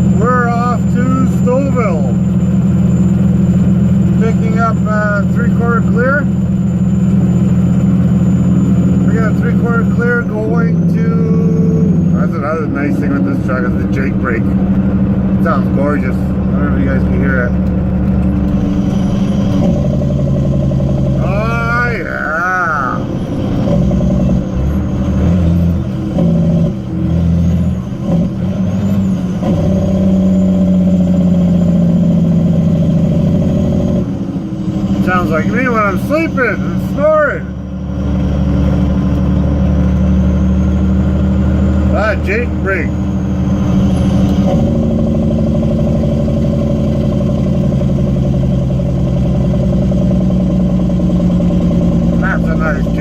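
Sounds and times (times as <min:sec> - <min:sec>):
truck engine brake rumbling: 0:12.9 - 0:21.3.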